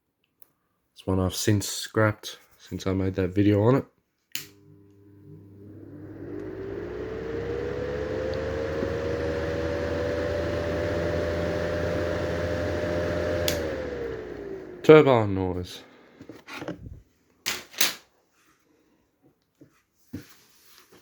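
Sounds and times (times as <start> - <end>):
exhaust fan whining: 4.6 - 15.5
fan switch click: 13.4 - 13.7.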